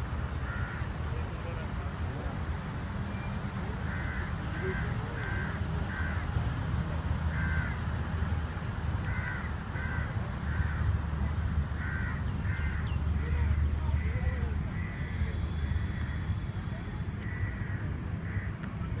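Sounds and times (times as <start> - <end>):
crows cawing: 0.4 - 1.0, 3.8 - 6.4, 7.3 - 7.9, 9.0 - 11.0, 11.7 - 16.3, 17.2 - 18.6.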